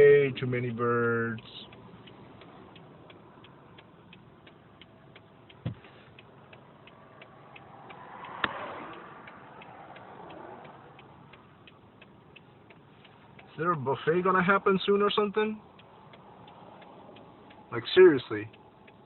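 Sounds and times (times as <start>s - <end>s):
road noise: 0.0s - 19.0s
turn signal ticking: 0.0s - 19.0s
low thump: 5.6s - 5.8s
sharp click: 7.6s - 11.8s.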